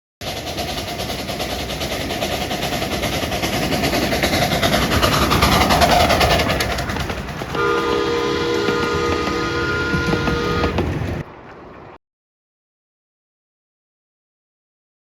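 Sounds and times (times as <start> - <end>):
steam train running: 0.2 - 11.3.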